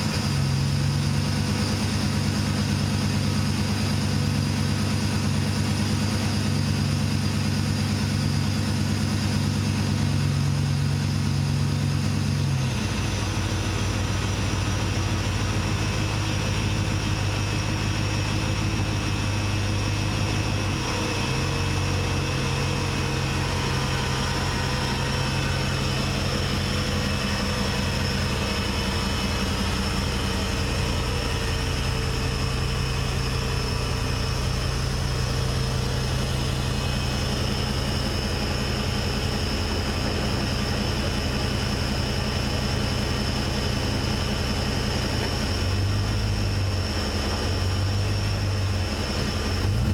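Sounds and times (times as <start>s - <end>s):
car engine idling: 0.0s - 49.9s.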